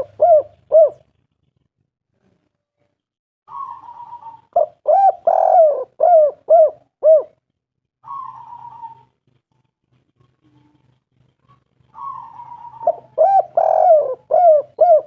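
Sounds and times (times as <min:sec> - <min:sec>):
dove cooing: 0:00.0 - 0:01.2, 0:03.5 - 0:07.4, 0:08.0 - 0:09.4, 0:10.2 - 0:15.0.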